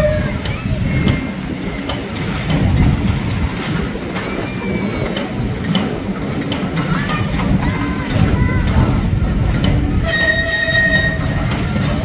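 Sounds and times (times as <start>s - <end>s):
train coaches rumbling: 0.0s - 12.0s
faint wheel squeal: 10.0s - 11.7s.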